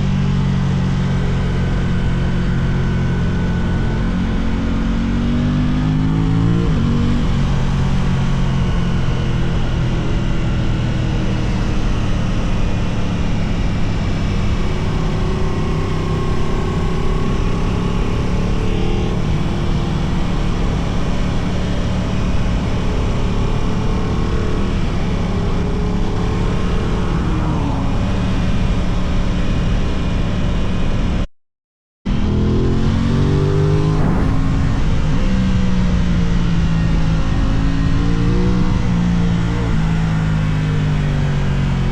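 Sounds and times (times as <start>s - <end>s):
motorcycle engine revving: 0.0s - 31.2s, 32.1s - 41.9s
wind rushing over microphone: 32.3s - 39.1s.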